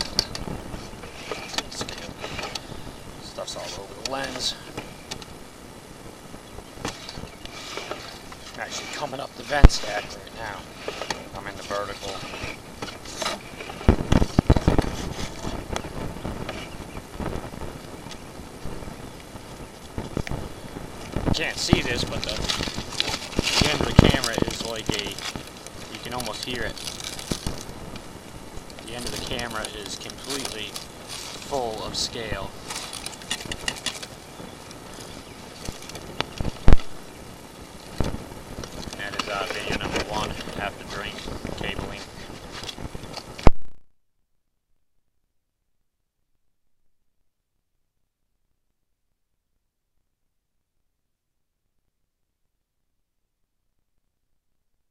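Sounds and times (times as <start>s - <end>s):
camera knocking and scraping in pipe: 0.0s - 2.7s, 6.8s - 16.9s
steady rumble in pipe: 0.0s - 43.4s.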